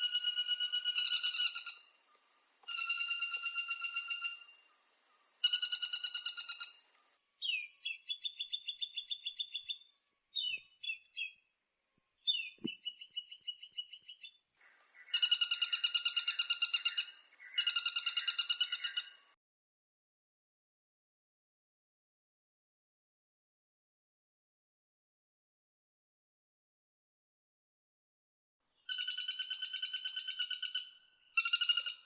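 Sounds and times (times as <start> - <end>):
woodpecker rattling calls: 0.0 - 9.8, 12.3 - 19.3, 28.9 - 32.0.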